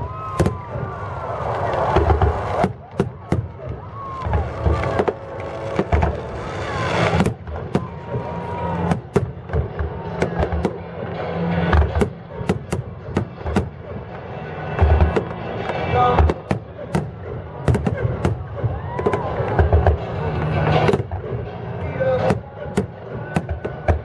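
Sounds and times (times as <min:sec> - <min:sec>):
fireworks booming: 0:00.0 - 0:10.8, 0:16.2 - 0:19.9
fireworks cracking: 0:00.1 - 0:09.8.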